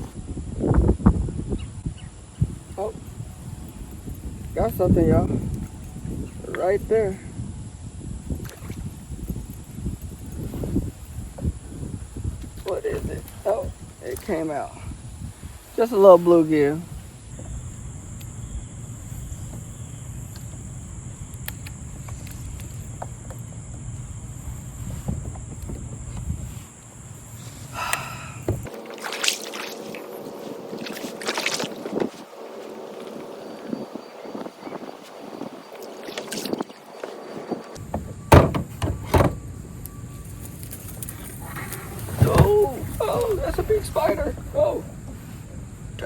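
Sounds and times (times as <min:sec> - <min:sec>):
crickets chirring: 0:00.0 - 0:46.0
water lapping against kayak: 0:08.2 - 0:39.4, 0:40.6 - 0:46.0
loud sharp knocks: 0:38.3 - 0:39.4.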